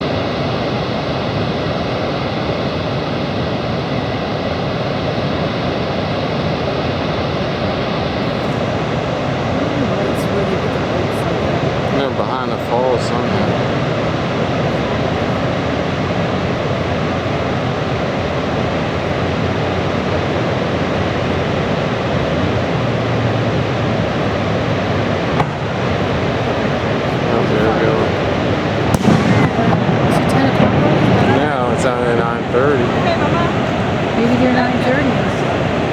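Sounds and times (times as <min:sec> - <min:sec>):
roar of rushing water: 0:08.2 - 0:35.9.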